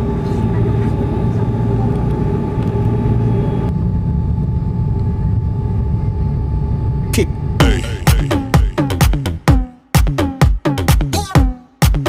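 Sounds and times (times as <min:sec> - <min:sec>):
jet engines rumbling in cabin: 0:00.0 - 0:09.4.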